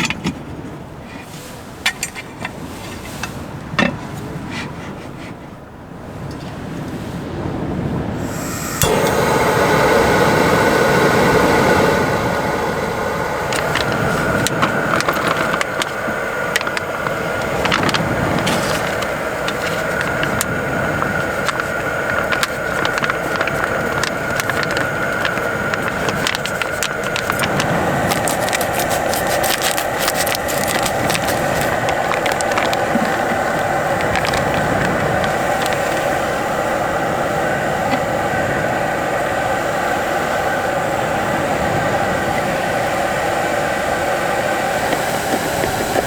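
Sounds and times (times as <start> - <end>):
crackling pops: 8.2 - 36.3.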